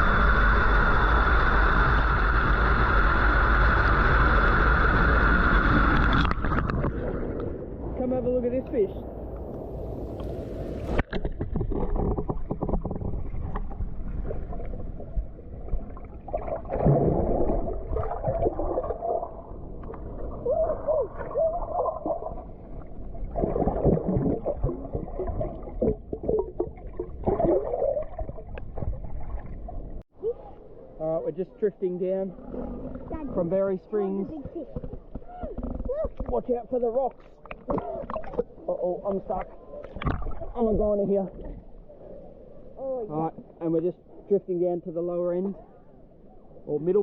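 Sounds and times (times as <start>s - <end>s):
underwater gurgling bubbles: 0.0s - 8.0s, 9.1s - 30.0s, 37.1s - 38.7s, 39.4s - 40.6s
underwater water movement: 0.0s - 31.0s, 32.3s - 44.4s.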